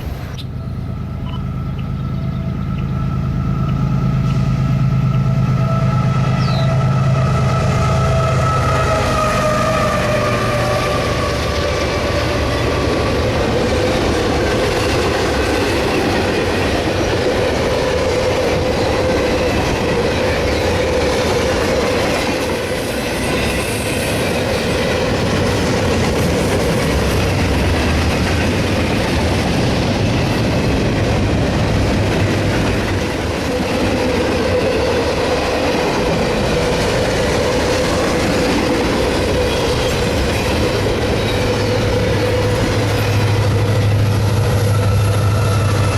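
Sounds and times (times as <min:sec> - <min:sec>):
train wheels squealing: 0:00.0 - 0:16.8, 0:18.0 - 0:28.0, 0:37.4 - 0:45.9
train wheels clickety-clack on rails: 0:00.0 - 0:45.9.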